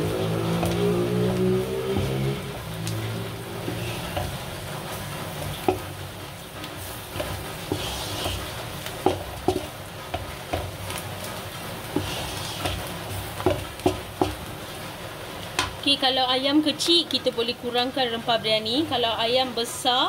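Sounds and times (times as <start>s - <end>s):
wooden spatula scraping a pan: 0.0s - 14.8s
onions sizzling in a pan: 0.0s - 20.0s.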